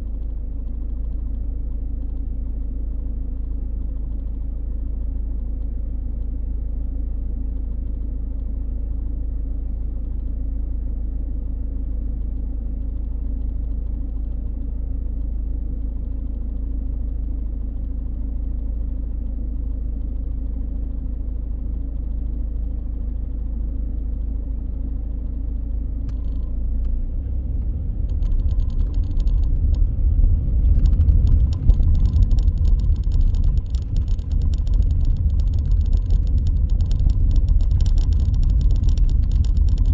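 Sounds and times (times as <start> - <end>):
car engine and road rumble: 0.0 - 39.9
crackling and rattling noise: 26.0 - 39.9.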